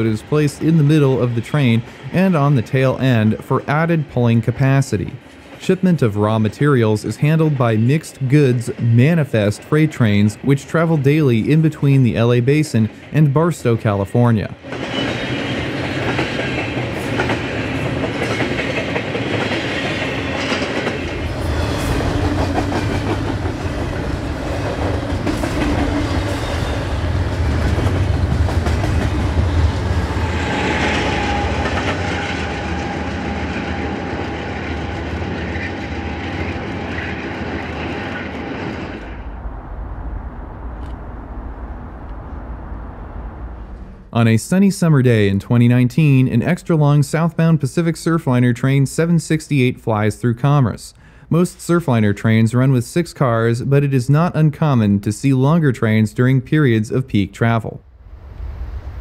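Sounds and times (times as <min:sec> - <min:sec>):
freight train rumbling: 0:00.0 - 0:50.7, 0:56.7 - 0:59.0
rattle of train cars: 0:14.5 - 0:44.1
wheels clacking over rail joints: 0:14.6 - 0:39.2.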